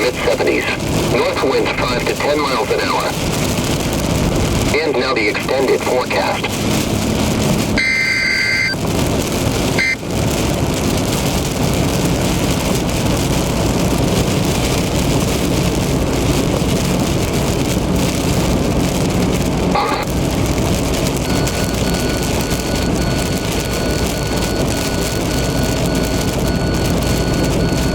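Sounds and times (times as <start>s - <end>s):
heavy rain on a car: 0.0s - 27.9s
road and tyre noise: 0.0s - 27.9s
multi-pitched tone: 7.8s - 8.8s, 21.2s - 27.9s.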